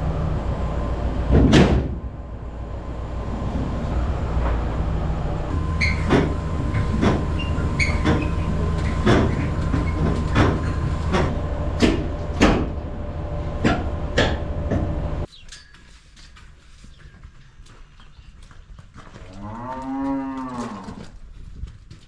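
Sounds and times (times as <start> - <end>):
trailer clanking and rattling: 0.0 - 15.3
truck engine running: 0.0 - 15.3.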